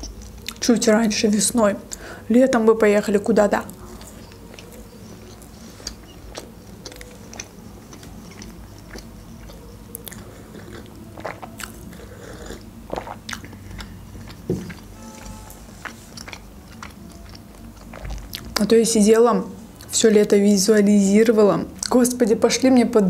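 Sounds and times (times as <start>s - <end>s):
person chewing toast: 3.7s - 18.6s
person sipping a drink: 10.0s - 18.2s.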